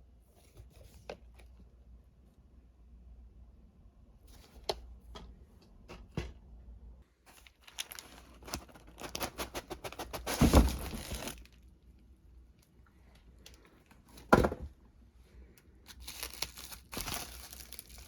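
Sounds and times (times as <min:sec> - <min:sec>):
packaging tearing and crackling: 0:07.3 - 0:11.6, 0:15.9 - 0:18.0.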